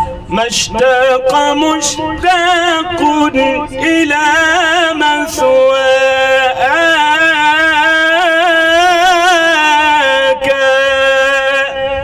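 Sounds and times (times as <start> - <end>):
sustained drone note: 0.0 - 8.6
man singing religious chant: 0.0 - 12.0.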